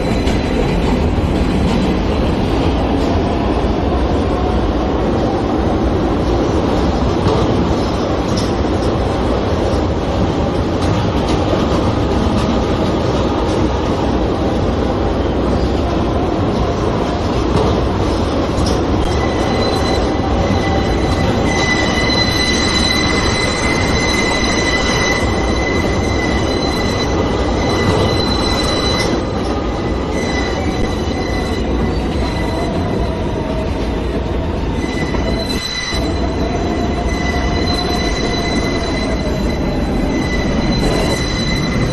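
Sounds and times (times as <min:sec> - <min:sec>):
train wheels rumbling on track: 0:00.0 - 0:41.9
high-pitched wheel squeal: 0:19.0 - 0:33.1, 0:34.7 - 0:41.9.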